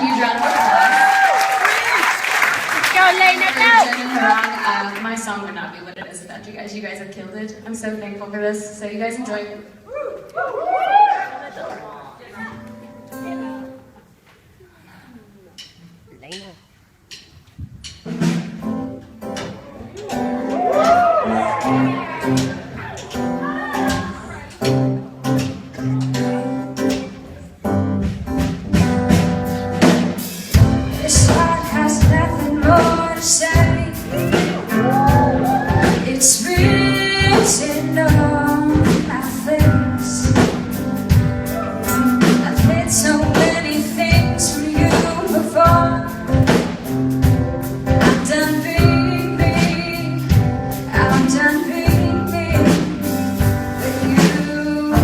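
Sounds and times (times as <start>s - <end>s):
instrumental backing with beat: 15.6s - 55.0s
person singing: 31.0s - 40.6s, 48.0s - 53.2s, 53.8s - 55.0s.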